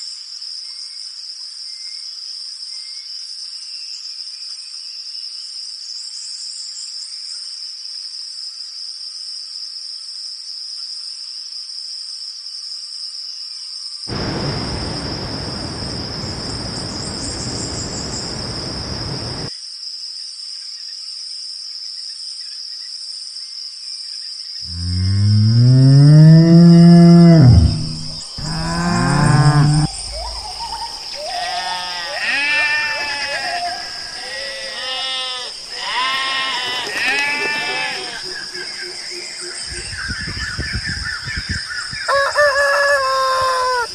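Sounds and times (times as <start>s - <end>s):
rushing noise: 14.1s - 19.5s, 27.3s - 31.3s
cow mooing: 24.7s - 38.3s.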